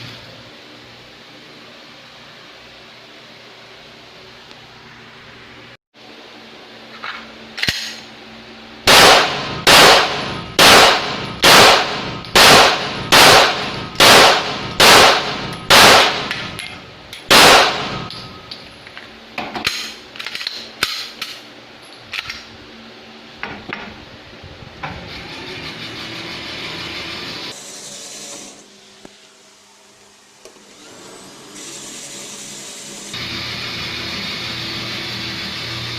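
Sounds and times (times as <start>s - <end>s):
faint gunshots: 8.9s - 16.3s, 17.3s - 18.1s
pistol shots: 8.9s - 16.5s, 17.3s - 18.1s.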